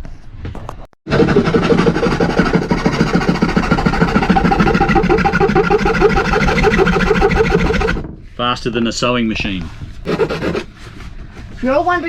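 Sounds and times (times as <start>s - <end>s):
electric power tool pulsing: 1.1s - 8.0s.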